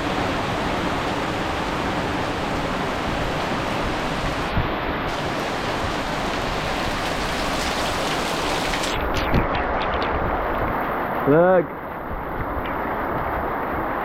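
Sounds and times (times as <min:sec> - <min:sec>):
heavy rain hissing: 0:00.0 - 0:09.5.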